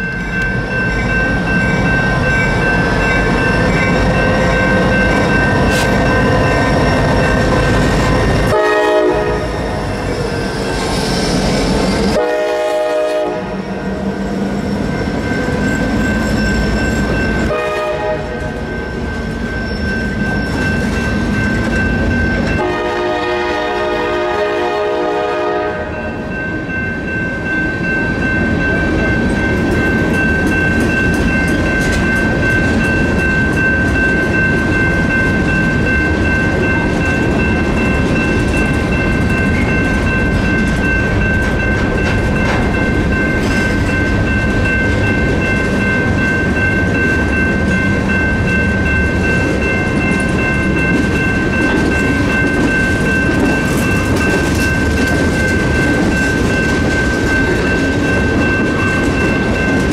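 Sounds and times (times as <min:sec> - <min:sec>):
train wheels rumbling on rail: 0:00.0 - 0:59.9
train horn: 0:08.5 - 0:09.6, 0:12.1 - 0:13.6, 0:17.5 - 0:18.6, 0:22.6 - 0:26.1.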